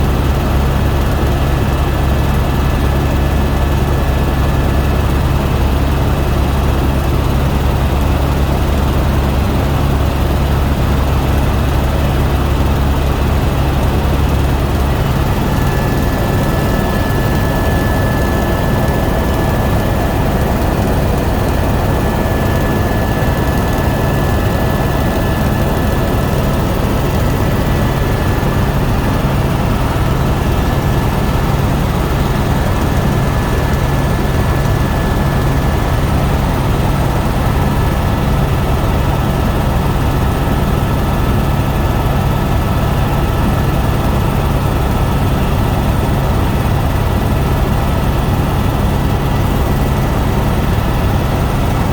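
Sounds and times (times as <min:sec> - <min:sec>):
helicopter engine and rotor drone: 0:00.0 - 0:51.9
high-pitched whine: 0:13.8 - 0:34.9.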